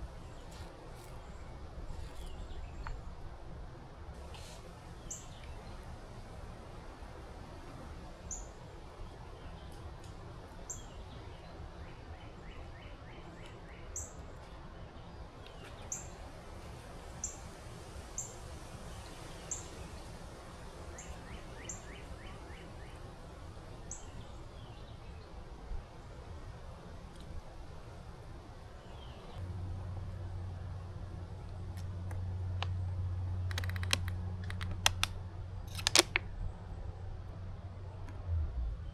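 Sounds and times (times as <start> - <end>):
low background rumble: 28.9 - 38.9.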